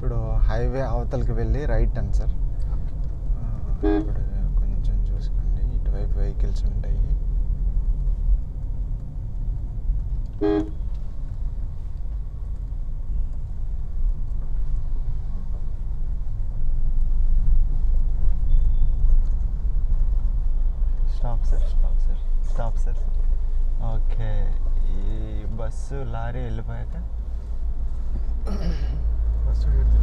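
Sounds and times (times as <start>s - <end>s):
car engine and road rumble: 0.0s - 30.0s
car horn toot: 3.8s - 4.2s, 10.4s - 10.9s.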